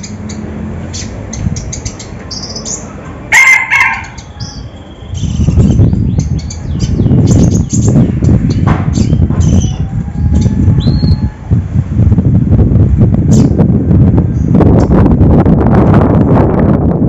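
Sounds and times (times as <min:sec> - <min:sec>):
low flutter or rumble: 0:05.2 - 0:17.0.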